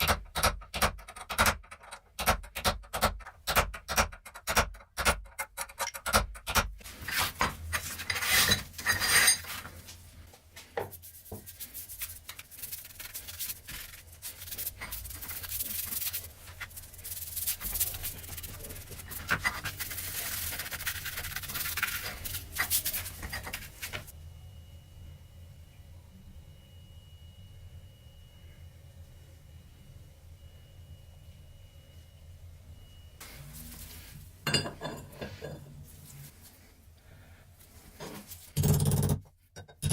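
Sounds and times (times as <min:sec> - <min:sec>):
hands rubbing: 0:10.9 - 0:24.1.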